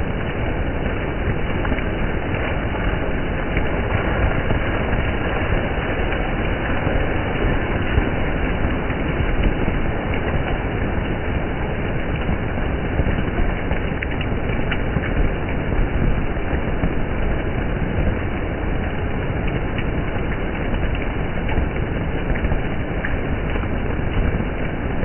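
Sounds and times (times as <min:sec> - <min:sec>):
water splashing on wet street: 0:00.0 - 0:25.0.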